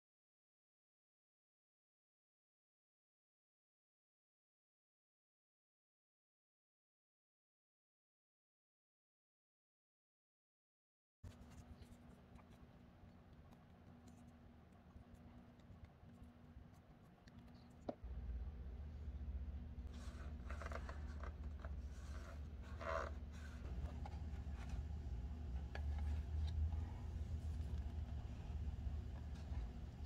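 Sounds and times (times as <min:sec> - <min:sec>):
paper rustling and scraping: 0:19.8 - 0:29.8.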